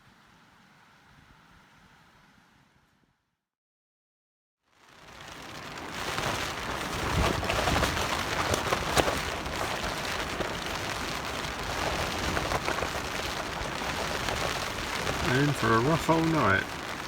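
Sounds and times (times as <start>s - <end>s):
heavy rain on a tarp: 4.7s - 17.0s.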